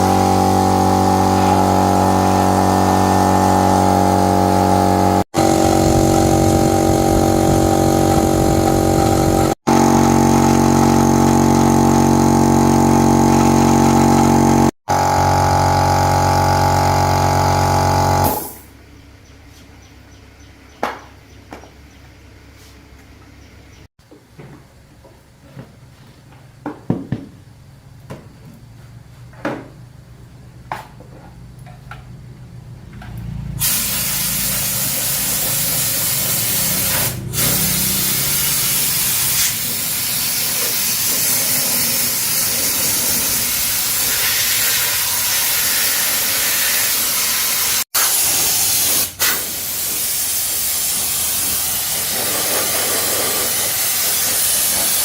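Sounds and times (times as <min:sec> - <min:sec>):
loud spraying hiss: 0:00.0 - 0:03.7, 0:33.6 - 0:55.0.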